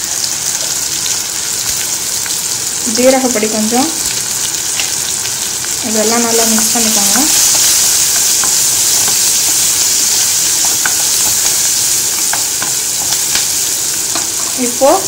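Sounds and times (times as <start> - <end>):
food sizzling in oil: 0.0 - 15.0
spatula scraping a pan: 7.3 - 14.6.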